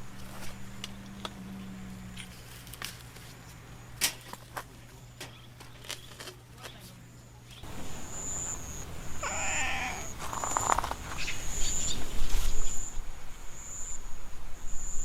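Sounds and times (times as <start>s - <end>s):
high thin insect chirp: 7.6s - 13.0s
cat meowing: 9.2s - 10.5s.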